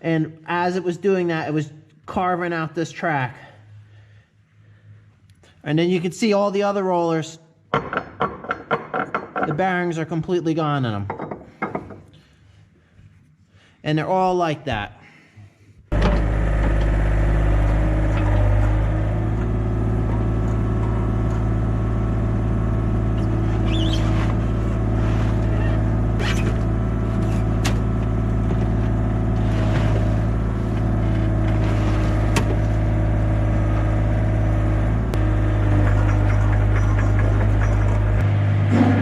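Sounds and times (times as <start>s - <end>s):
diesel engine running: 15.9s - 39.0s.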